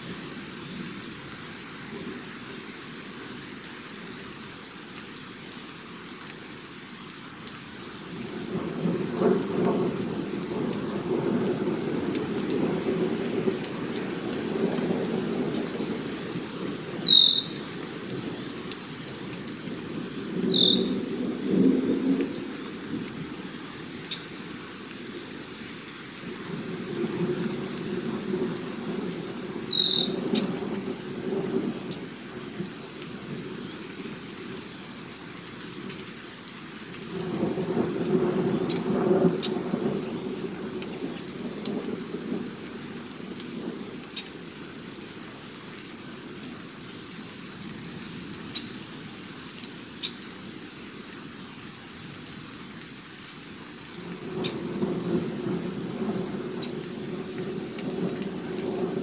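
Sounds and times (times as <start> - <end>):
bird high thin whistles: 17.0 - 17.6, 20.5 - 20.9, 29.7 - 30.2.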